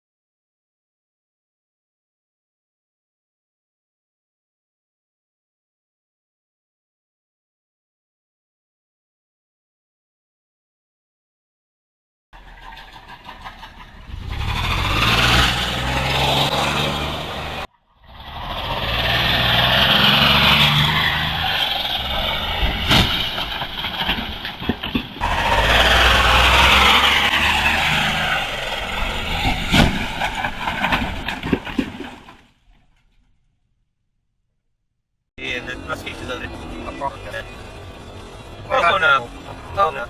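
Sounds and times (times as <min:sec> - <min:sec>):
vehicle engines running: 0:12.4 - 0:32.4, 0:35.4 - 0:40.0
road and tyre noise: 0:12.4 - 0:33.8, 0:35.4 - 0:40.0.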